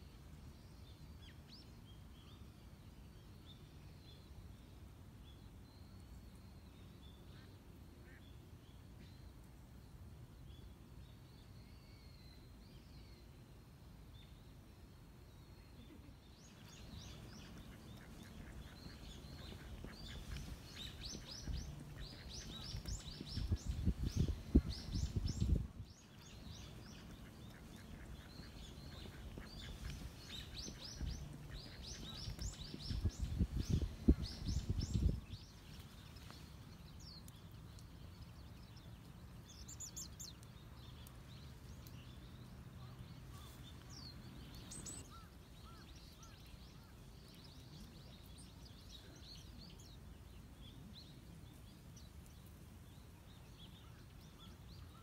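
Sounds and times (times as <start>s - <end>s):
birds chirping rapidly: 16.1s - 55.0s.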